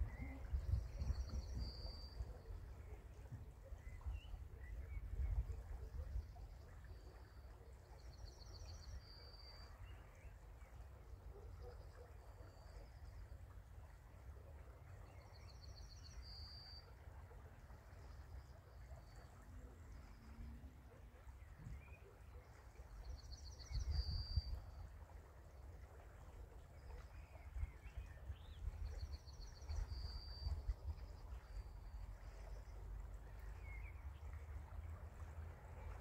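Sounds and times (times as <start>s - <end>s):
faint bird chirps: 0.0s - 10.4s, 18.7s - 24.9s.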